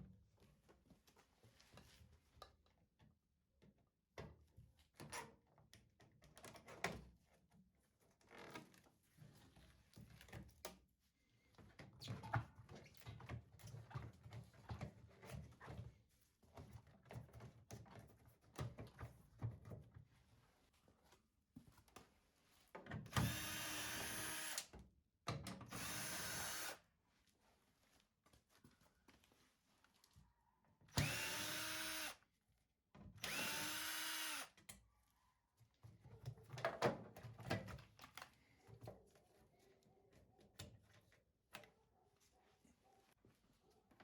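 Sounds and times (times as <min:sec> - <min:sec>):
cordless drill whirring: 0:23.1 - 0:24.7, 0:25.7 - 0:26.8, 0:31.0 - 0:32.2, 0:33.2 - 0:34.5.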